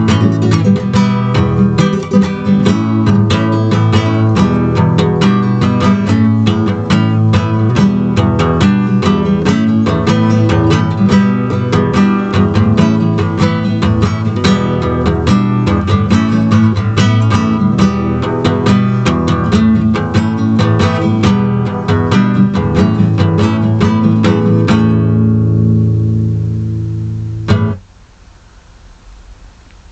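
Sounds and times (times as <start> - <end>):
acoustic guitar strumming: 0.0 - 27.9.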